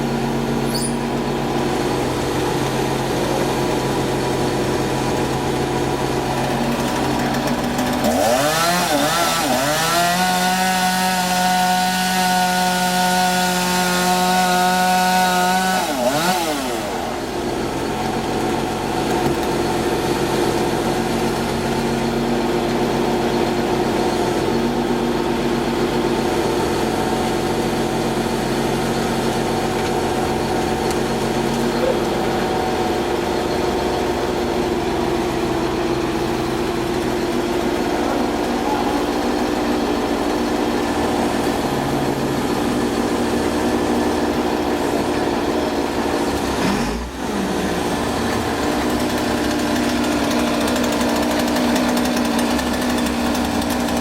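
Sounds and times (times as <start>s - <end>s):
large engine idling: 0.0s - 8.2s, 17.0s - 54.0s
chainsaw revving: 0.0s - 54.0s.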